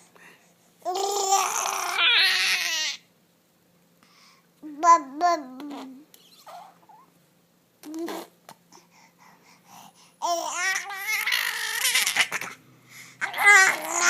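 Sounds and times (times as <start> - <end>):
baby babbling cry: 0.9 - 3.0, 10.2 - 12.6, 13.2 - 14.0.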